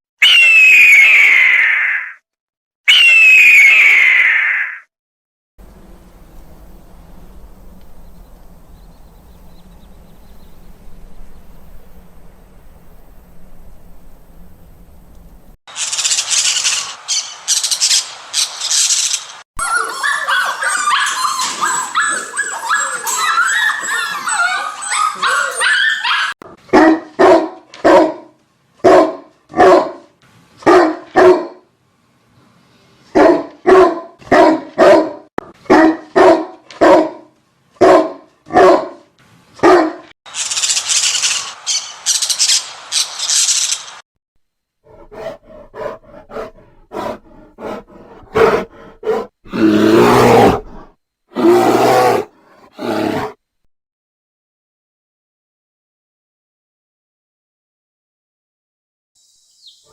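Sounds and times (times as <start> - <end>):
high chirping calls: 6.0 - 13.4, 40.3 - 43.9
dog barking: 19.6 - 31.7, 33.2 - 40.1, 44.9 - 50.8
bursts of hissing noise: 40.3 - 44.0.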